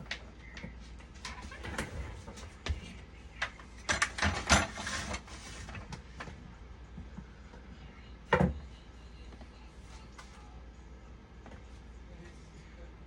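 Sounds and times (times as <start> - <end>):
clatter and scraping: 3.8 - 6.0.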